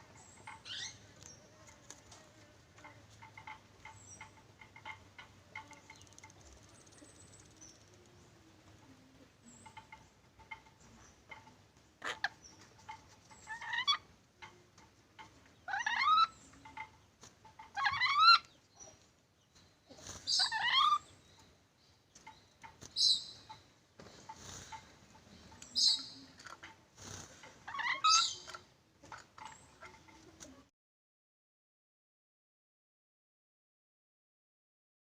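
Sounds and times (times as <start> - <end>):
parrot harsh calls: 15.7 - 16.4, 17.8 - 18.4, 20.3 - 21.1, 27.7 - 28.4.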